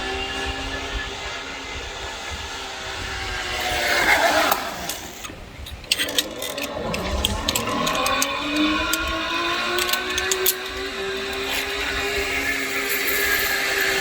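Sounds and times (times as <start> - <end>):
zipline pulleys whirring on cable: 0.0 - 14.0
sharp metallic clicks: 4.0 - 14.0.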